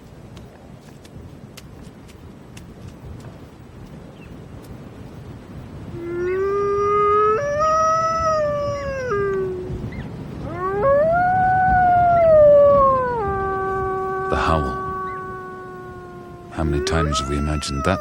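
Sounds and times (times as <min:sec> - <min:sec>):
wolf howling: 0:05.9 - 0:09.8, 0:10.4 - 0:18.0.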